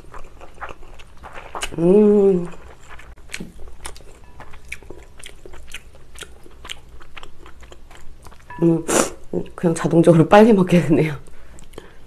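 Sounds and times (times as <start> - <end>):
person chewing noodles: 0.0 - 8.5, 11.3 - 12.0.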